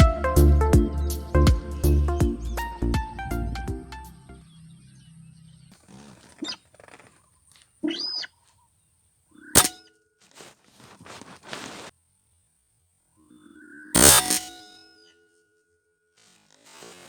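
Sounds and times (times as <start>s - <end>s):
bird call: 7.8s - 8.6s.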